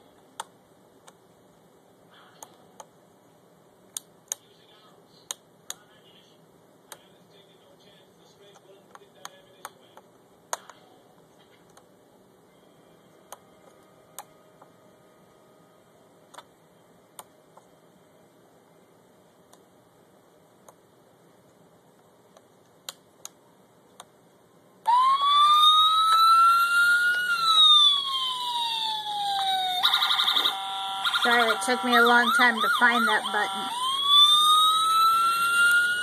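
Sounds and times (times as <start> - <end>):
faint clicks and taps: 2.4 - 3.0, 3.9 - 4.5, 6.9 - 7.1, 8.5 - 11.9, 17.1 - 17.7, 20.6 - 20.8, 21.4 - 24.2
toy electronic siren wailing: 24.9 - 36.0.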